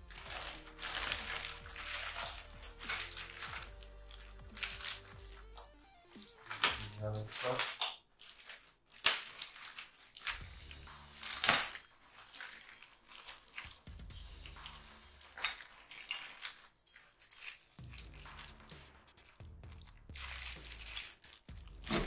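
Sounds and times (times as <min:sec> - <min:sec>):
packing material crinkling: 0:00.0 - 0:22.0
sharp clicks of handled parts: 0:00.1 - 0:22.0.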